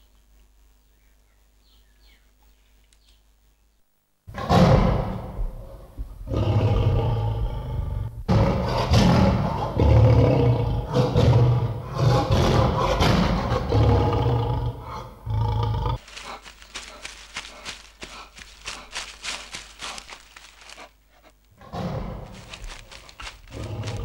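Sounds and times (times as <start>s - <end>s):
tiger roaring and snarling: 4.3s - 18.9s, 21.6s - 24.0s.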